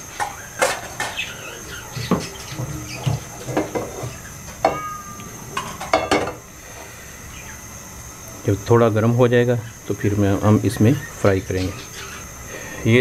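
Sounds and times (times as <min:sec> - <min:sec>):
small birds chirping: 0:00.3 - 0:03.4, 0:07.2 - 0:07.7, 0:10.8 - 0:12.8.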